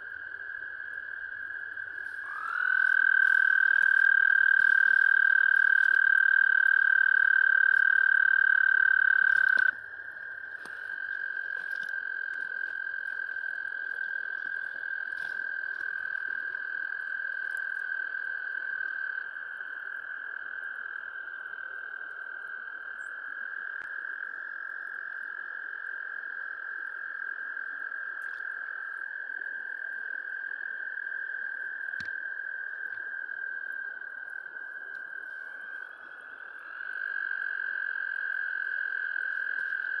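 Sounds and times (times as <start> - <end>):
overlapping frog calls: 0.0 - 21.5, 22.8 - 40.0
frog high-pitched call: 1.6 - 19.0.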